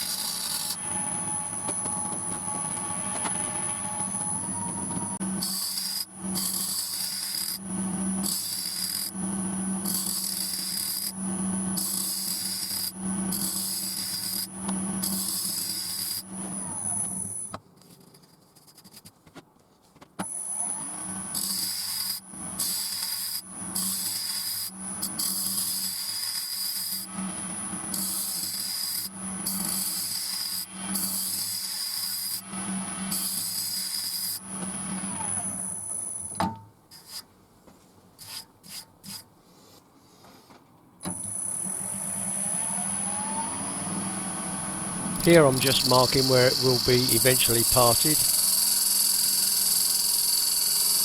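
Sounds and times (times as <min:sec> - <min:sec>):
wood lathe running: 0:45.2 - 0:48.6.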